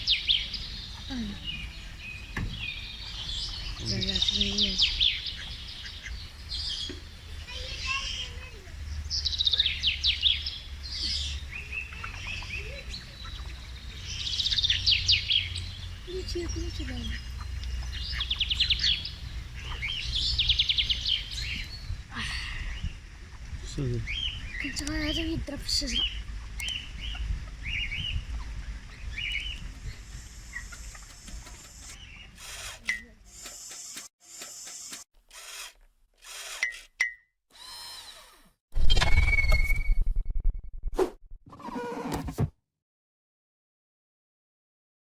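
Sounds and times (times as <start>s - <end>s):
low bird chirps: 0.0s - 23.0s, 38.8s - 40.9s
songbirds trilling and chirping: 0.0s - 34.0s
steady low rumble: 0.1s - 31.5s.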